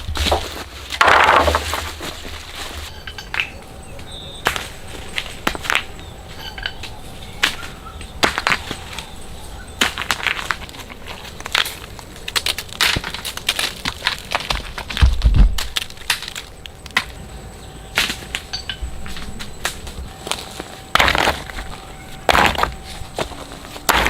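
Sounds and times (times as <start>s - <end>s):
dry wood cracking and snapping: 9.8s - 17.2s.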